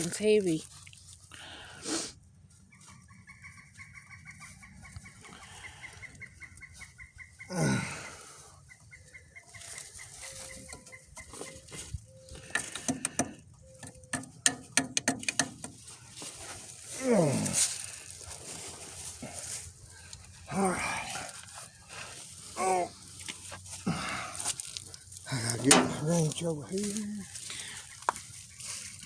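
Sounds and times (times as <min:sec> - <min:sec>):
chickens clucking: 0:02.6 - 0:13.8, 0:25.3 - 0:29.0.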